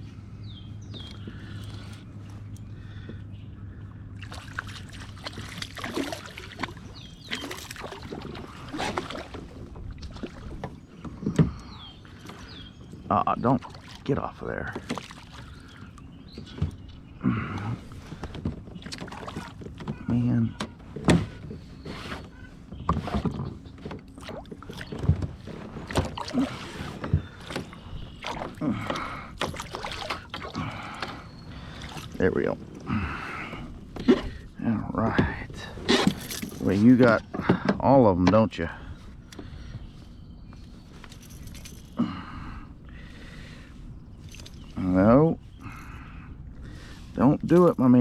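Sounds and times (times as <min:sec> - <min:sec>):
water splashing against kayak: 0:04.2 - 0:12.6, 0:13.5 - 0:17.1, 0:17.8 - 0:34.4.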